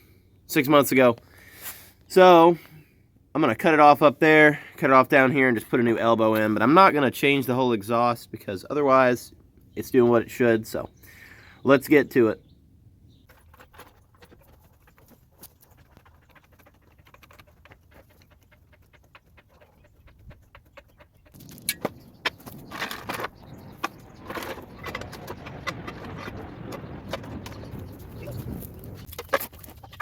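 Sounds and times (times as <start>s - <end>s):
scraping and rustling: 13.2s - 30.0s.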